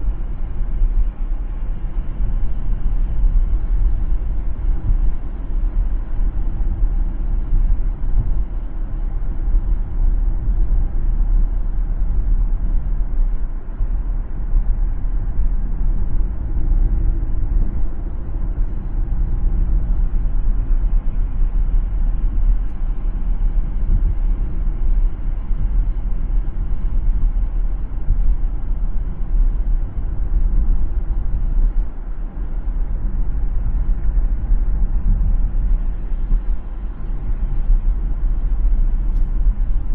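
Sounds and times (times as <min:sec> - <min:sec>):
car tyres and engine rumble: 0:00.0 - 0:39.9.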